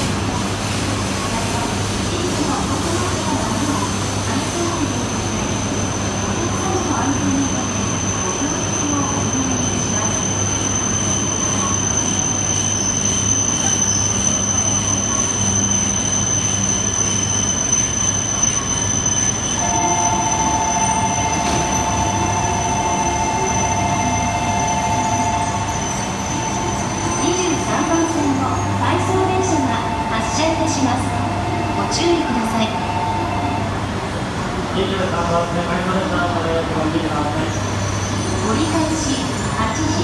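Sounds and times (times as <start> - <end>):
train rumble: 0.0 - 40.0
thin high whine: 19.5 - 30.9
two-note tone: 19.6 - 25.9.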